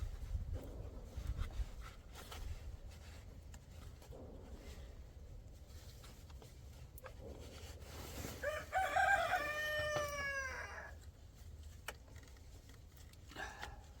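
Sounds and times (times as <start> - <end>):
rooster crowing: 8.4 - 11.0.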